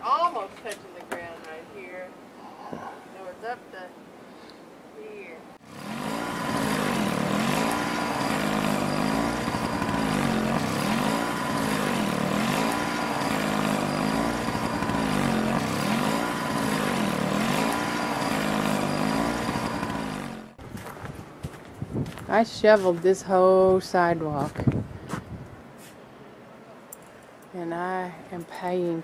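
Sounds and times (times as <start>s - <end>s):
engine pitch rising and falling: 5.6s - 20.6s.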